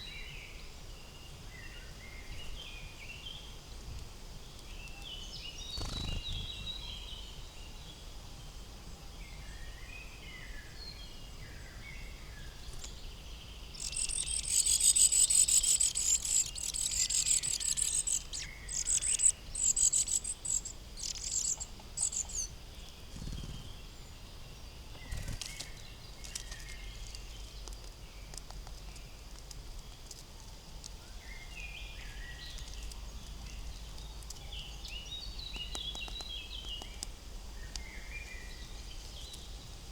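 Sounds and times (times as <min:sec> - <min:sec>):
birds chirping: 0:04.8 - 0:07.4, 0:11.7 - 0:29.2.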